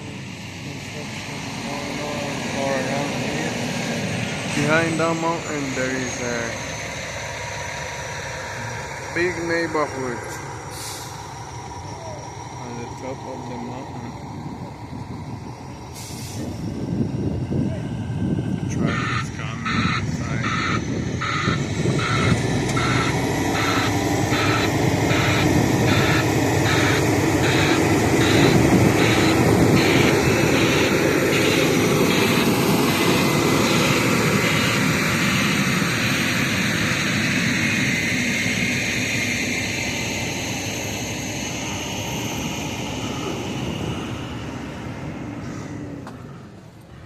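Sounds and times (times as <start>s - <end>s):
heavy truck engine running: 0.0s - 47.0s
reversing alarm beeping: 18.9s - 37.4s.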